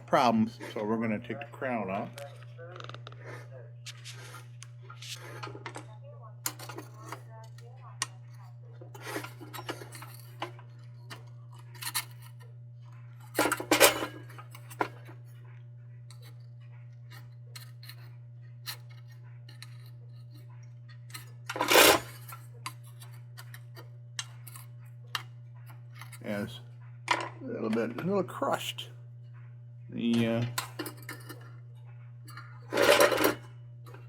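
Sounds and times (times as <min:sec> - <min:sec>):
steady low hum: 0:00.0 - 0:34.0
metallic clicks and scrapes: 0:16.1 - 0:26.3.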